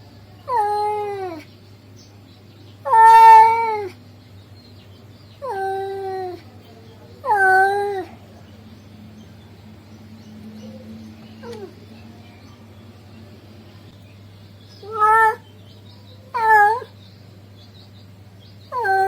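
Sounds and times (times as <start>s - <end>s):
cat yowling: 0.5s - 1.4s, 2.8s - 4.0s, 5.4s - 6.4s, 7.2s - 8.2s, 11.4s - 11.8s, 14.8s - 15.4s, 16.3s - 17.0s, 18.7s - 19.0s.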